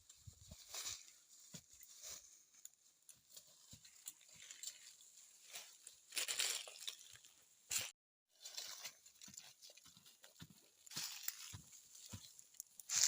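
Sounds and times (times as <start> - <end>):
rustling and crackling of handling: 0.0 - 13.0.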